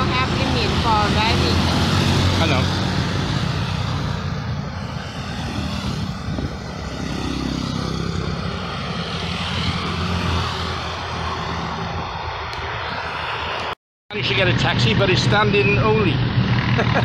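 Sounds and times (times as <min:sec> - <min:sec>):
road noise: 0:00.0 - 0:17.0
vehicle engine drone: 0:00.0 - 0:17.0.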